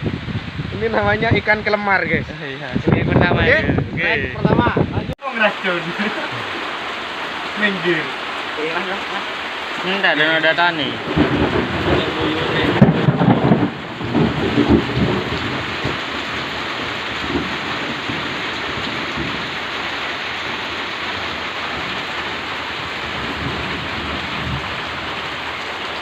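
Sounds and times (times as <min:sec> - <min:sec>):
heavy rain falling: 0:00.0 - 0:26.0
low rumbling: 0:10.5 - 0:19.6.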